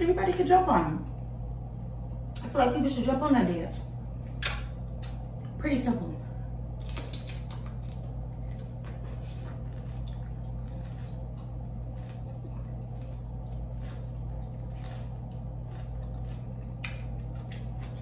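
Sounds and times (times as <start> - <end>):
low electrical hum: 0.0 - 18.0
person chewing food: 6.8 - 18.0.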